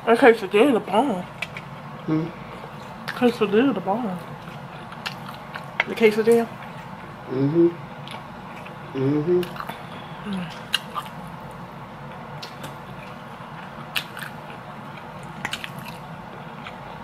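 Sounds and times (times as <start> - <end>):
person humming: 2.1 - 2.4, 7.3 - 7.8, 8.9 - 9.5
person chewing: 4.2 - 5.9, 8.0 - 17.0.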